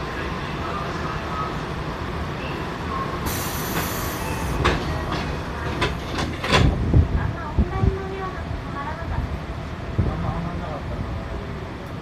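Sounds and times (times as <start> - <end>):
wheels rumbling on rail: 0.0 - 12.0
air hiss: 3.2 - 4.5
rail clacks: 3.3 - 8.0.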